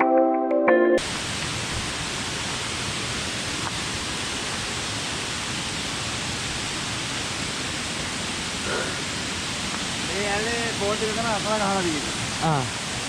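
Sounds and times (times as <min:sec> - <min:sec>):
ambient music: 0:00.0 - 0:01.0
waterfall rushing water: 0:01.0 - 0:13.0.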